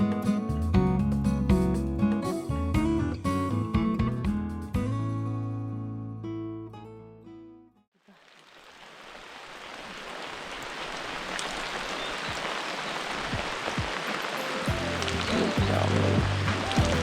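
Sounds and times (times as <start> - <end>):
heavy raindrops landing: 8.0 - 17.0
steady rainfall: 8.0 - 17.0.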